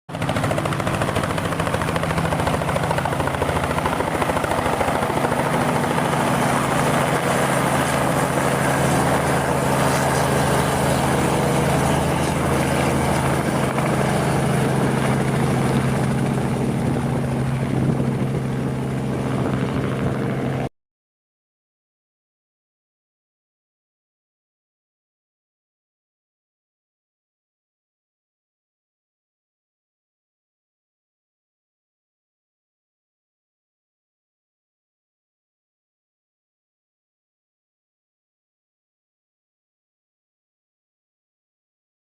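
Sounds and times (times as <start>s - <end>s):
helicopter engine and rotor: 0.1s - 20.7s.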